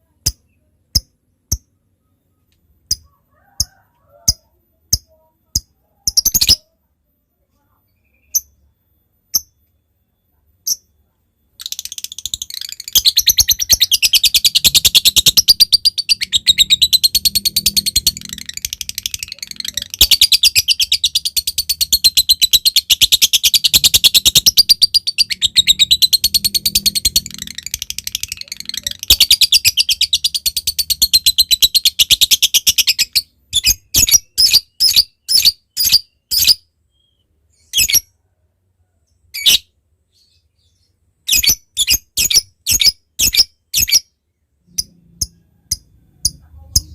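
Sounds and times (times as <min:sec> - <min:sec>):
bird chirps: 0:00.0 - 0:38.2, 0:39.1 - 0:46.9
lovebird chattering trill: 0:11.6 - 0:36.6.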